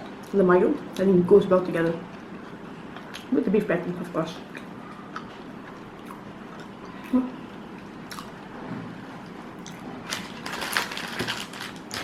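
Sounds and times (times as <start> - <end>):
chewing with wet mouth sounds: 2.1 - 3.4, 4.4 - 8.4.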